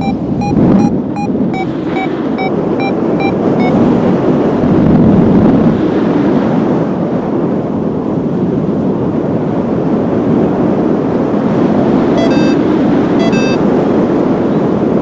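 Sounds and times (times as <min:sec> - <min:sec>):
short high electronic beeps: 0:00.0 - 0:03.7, 0:12.2 - 0:12.6, 0:13.2 - 0:13.6
wind buffeting microphone: 0:00.0 - 0:15.0.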